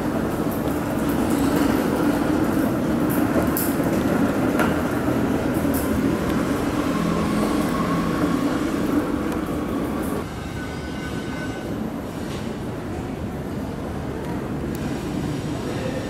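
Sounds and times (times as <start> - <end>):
train mechanical drone: 0.0 - 16.0.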